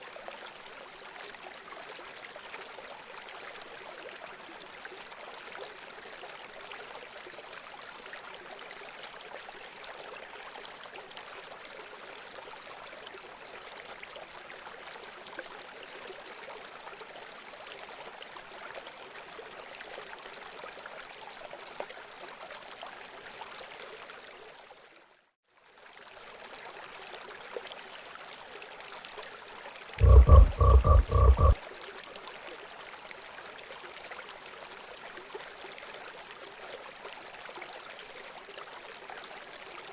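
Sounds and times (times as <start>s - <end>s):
low pulsed call: 30.0s - 31.6s.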